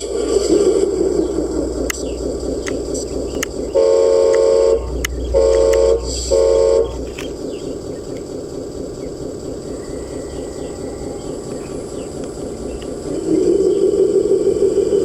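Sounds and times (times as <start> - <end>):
train rumbling: 0.0 - 15.0
sharp clicks: 1.1 - 9.7, 11.4 - 13.2
train horn blasts: 3.7 - 7.2.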